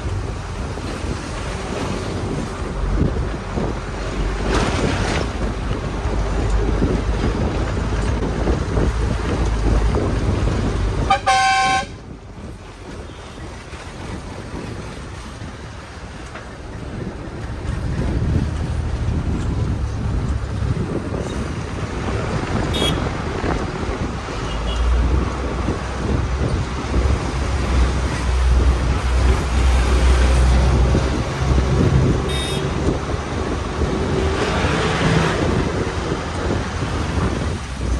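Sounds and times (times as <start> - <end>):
vehicle horn: 11.0 - 12.0, 22.7 - 23.1, 24.4 - 25.0, 32.2 - 33.0
low vehicle rumble: 15.8 - 37.9.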